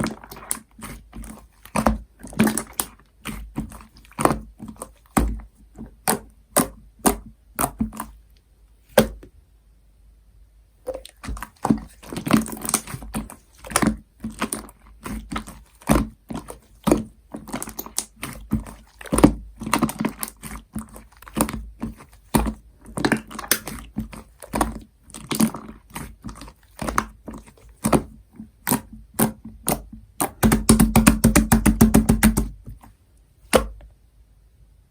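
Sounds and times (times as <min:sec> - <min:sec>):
slime clicking and popping: 0:10.9 - 0:32.6.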